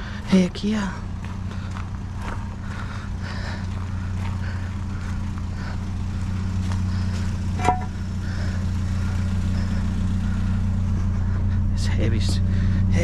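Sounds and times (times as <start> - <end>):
vehicle engine idling: 0.0 - 13.0
sharp metallic clank: 7.6 - 8.0.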